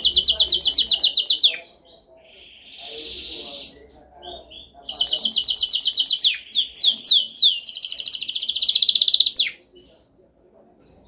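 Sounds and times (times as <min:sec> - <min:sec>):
canary singing: 0:00.0 - 0:11.0.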